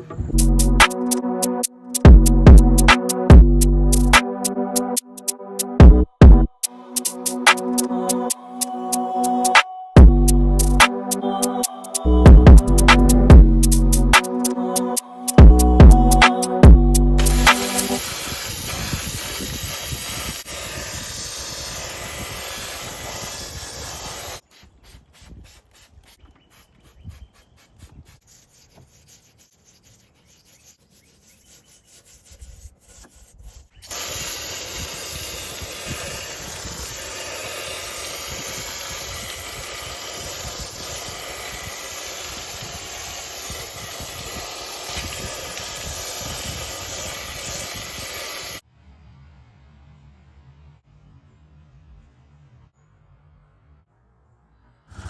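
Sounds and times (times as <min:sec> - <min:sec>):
hissing spray: 0:17.2 - 0:28.4, 0:33.8 - 0:48.6.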